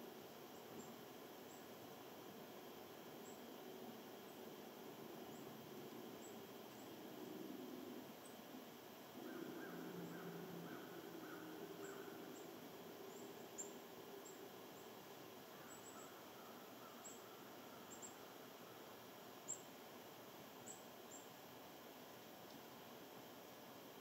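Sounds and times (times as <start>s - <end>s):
low repeated bird call: 9.1s - 19.7s.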